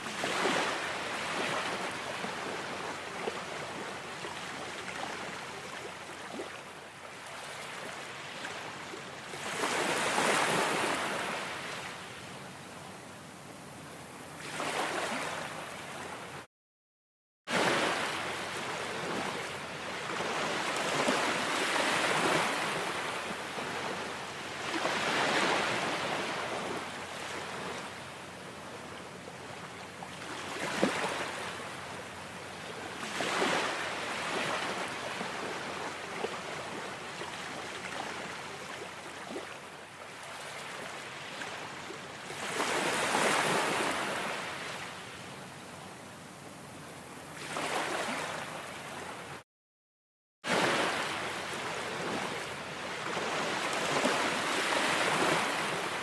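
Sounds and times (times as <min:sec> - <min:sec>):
ocean waves breaking: 0:00.0 - 0:05.4, 0:09.4 - 0:11.9, 0:14.4 - 0:16.2, 0:17.5 - 0:27.9, 0:33.0 - 0:36.7, 0:47.4 - 0:49.0, 0:50.5 - 0:56.0.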